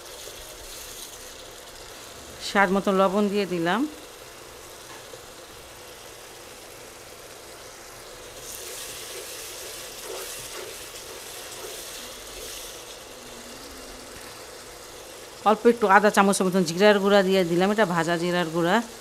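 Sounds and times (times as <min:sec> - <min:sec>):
paste sizzling in oil: 0:00.0 - 0:19.0
wooden spatula stirring: 0:08.4 - 0:13.2.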